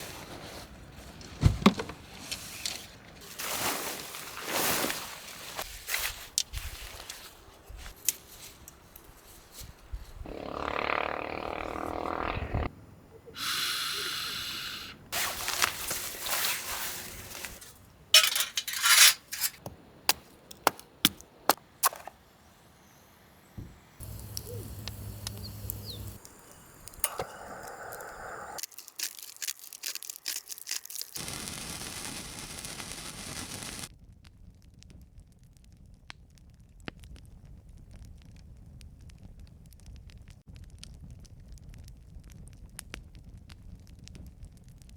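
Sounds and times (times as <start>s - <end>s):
hissing and crackling: 2.2s - 19.6s, 22.8s - 33.9s.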